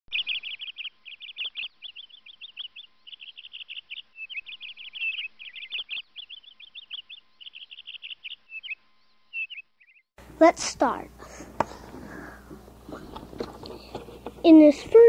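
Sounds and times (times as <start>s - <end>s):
bird chirping: 0.1s - 10.1s.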